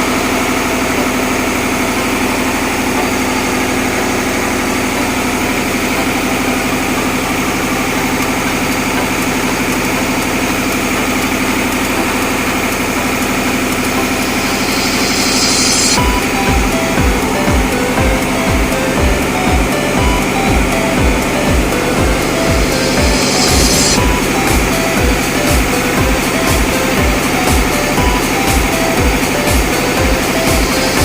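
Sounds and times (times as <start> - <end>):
diesel engine droning: 0.0 - 31.0
high hiss: 14.2 - 16.0.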